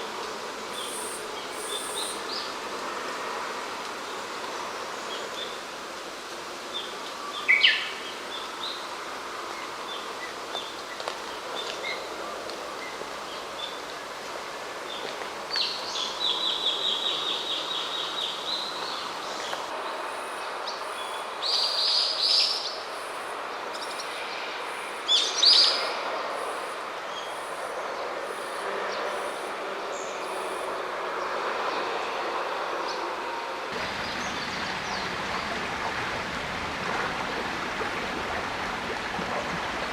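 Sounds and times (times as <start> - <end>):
songbirds calling: 0.7 - 2.5, 14.9 - 30.7.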